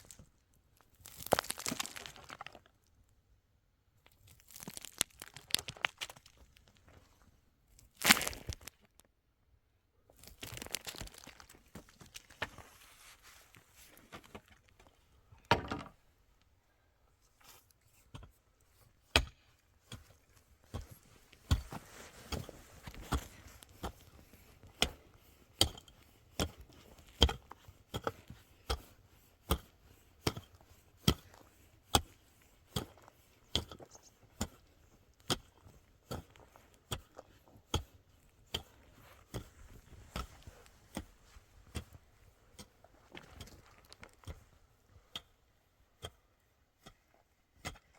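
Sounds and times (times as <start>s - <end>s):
chopping wood: 19.1s - 25.0s, 27.2s - 28.9s, 29.5s - 32.1s.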